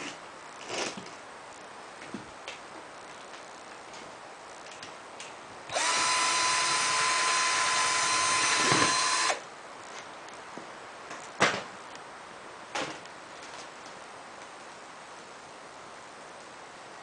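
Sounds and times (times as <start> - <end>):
power drill running: 5.7 - 9.4.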